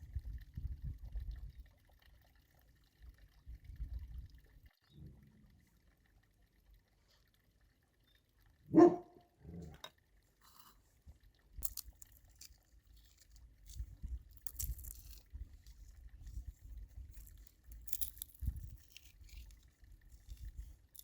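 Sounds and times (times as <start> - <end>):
dog barking: 8.7 - 9.2
light clicks and clatter: 11.6 - 21.0.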